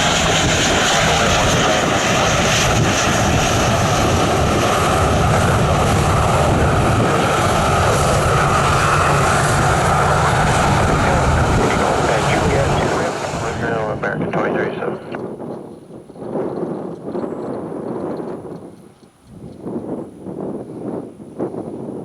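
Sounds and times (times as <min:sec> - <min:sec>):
jet engines rumbling: 0:00.0 - 0:15.6.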